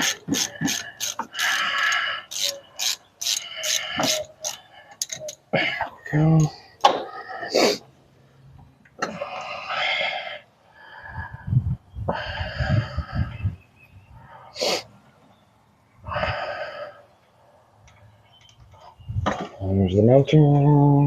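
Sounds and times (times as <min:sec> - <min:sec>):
metal parts squeaking: 0:00.0 - 0:06.6.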